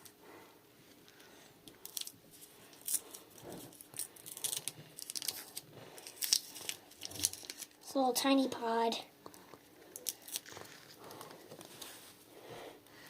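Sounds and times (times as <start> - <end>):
wrappers crinkling and ripping: 1.8 - 7.8, 9.9 - 12.0.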